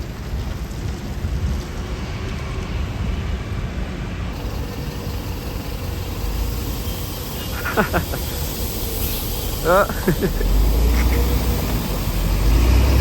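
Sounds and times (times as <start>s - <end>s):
road traffic rumbling: 0.0s - 13.0s.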